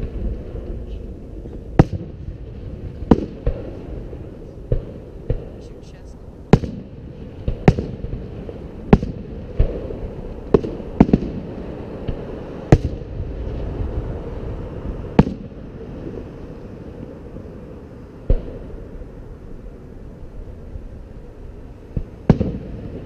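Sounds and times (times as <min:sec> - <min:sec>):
firework shells booming: 0:00.0 - 0:17.6, 0:18.2 - 0:19.1, 0:21.9 - 0:23.0
low rumble: 0:00.0 - 0:23.0.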